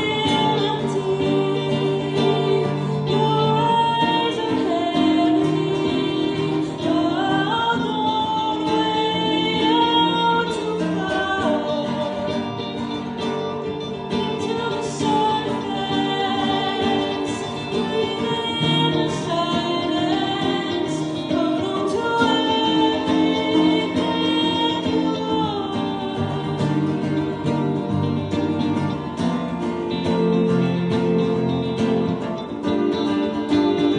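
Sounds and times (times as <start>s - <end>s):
person singing long notes: 0.0s - 12.9s, 14.0s - 27.8s
guitar accompaniment: 0.0s - 33.9s.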